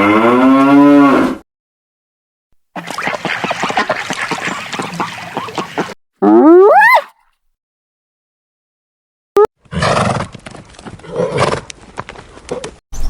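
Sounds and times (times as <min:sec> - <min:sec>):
ducks quacking: 0:02.8 - 0:05.9
horse whinnying: 0:06.2 - 0:07.1.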